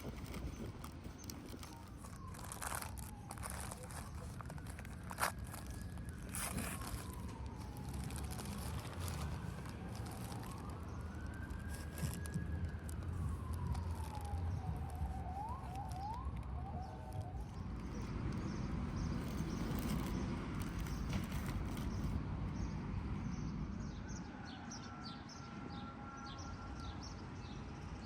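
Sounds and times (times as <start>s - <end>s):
siren wailing: 0.0s - 19.9s
siren yelps: 0.2s - 18.5s.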